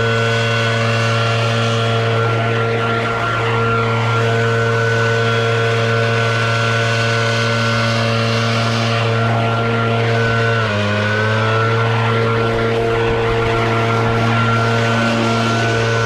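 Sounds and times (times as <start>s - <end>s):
leaf blower engine running: 0.0s - 16.0s.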